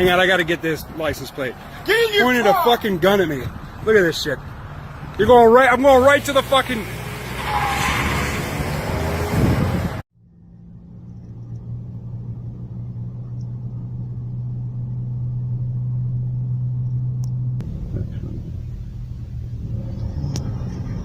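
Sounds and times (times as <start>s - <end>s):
loud road noise: 0.0s - 21.0s
vehicle low drone: 8.4s - 21.0s.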